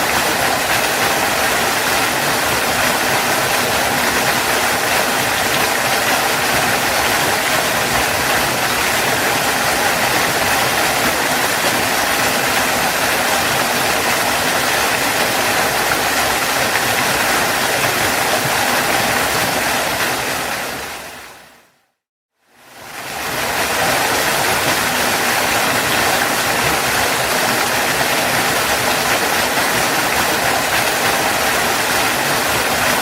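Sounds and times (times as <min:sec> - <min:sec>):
waterfall rushing: 0:00.0 - 0:21.6, 0:22.7 - 0:33.0.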